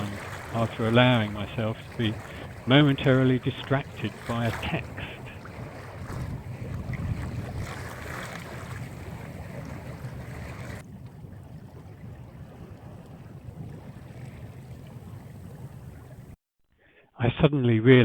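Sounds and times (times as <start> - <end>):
water rushing along hull: 0.0 - 16.4
wind buffeting microphone: 0.0 - 16.4.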